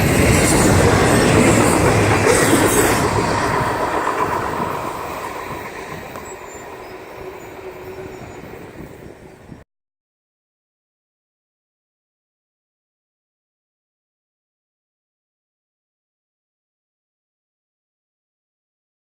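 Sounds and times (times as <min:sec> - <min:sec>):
freight train rolling past: 0:00.0 - 0:09.6.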